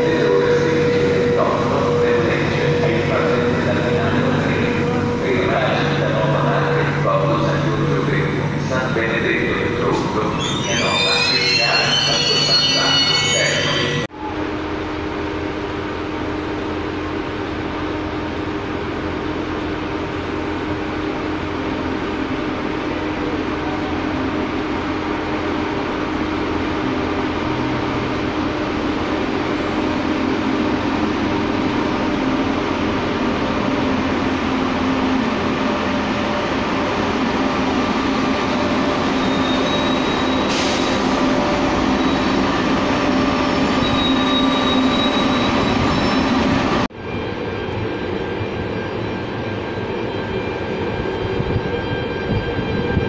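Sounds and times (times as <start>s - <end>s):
electric train hum and rumble: 0.0s - 53.0s
brakes squealing: 9.9s - 14.1s, 38.0s - 46.8s.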